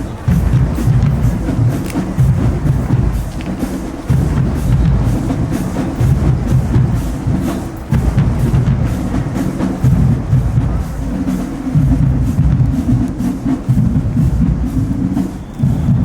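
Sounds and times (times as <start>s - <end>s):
bass drums pounding: 0.0s - 16.0s
snare drum and stick clicks: 0.3s - 2.5s, 3.2s - 3.8s.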